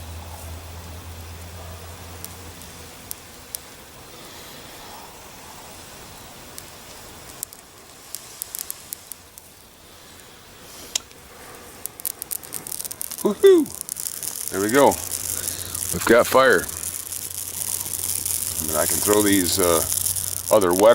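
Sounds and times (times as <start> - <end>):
dry grass crackling: 0.0 - 20.9
breath blowing into tinder: 3.9 - 20.9.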